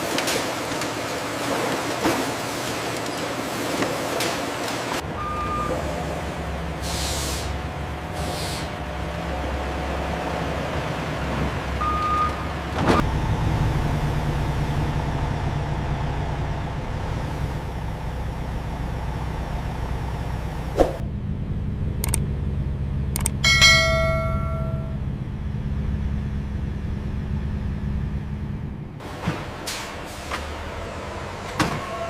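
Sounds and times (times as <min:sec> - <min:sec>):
low mechanical hum: 0:11.8 - 0:29.6
sharp clicks: 0:22.0 - 0:22.3, 0:23.1 - 0:23.4
metallic clang: 0:23.4 - 0:25.0.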